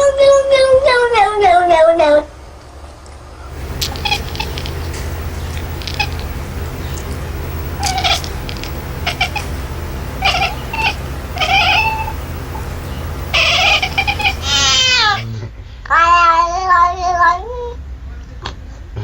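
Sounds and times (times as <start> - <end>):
steady low hum: 3.4 - 15.5.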